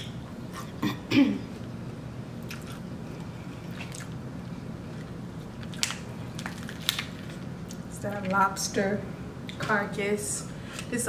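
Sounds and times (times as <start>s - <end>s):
chewing and wet mouth sounds: 2.4s - 4.2s.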